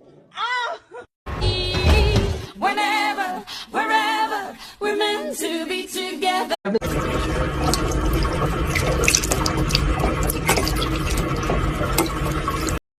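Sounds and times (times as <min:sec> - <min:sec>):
running water: 0:06.8 - 0:12.8
clicks and splashes: 0:06.9 - 0:12.8.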